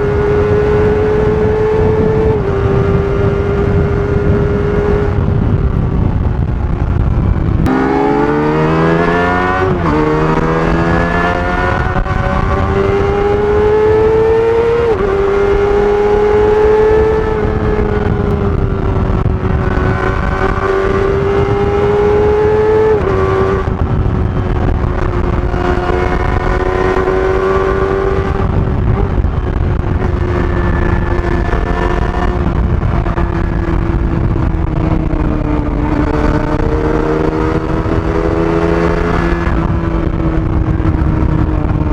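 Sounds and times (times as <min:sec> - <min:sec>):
motorcycle accelerating through gears: 0:00.0 - 0:41.9.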